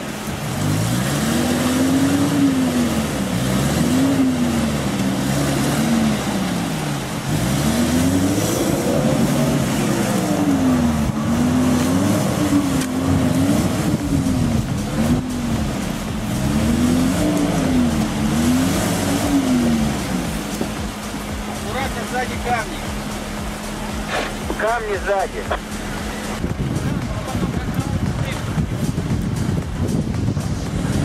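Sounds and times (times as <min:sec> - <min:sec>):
car engine revving under load: 0:00.0 - 0:31.0.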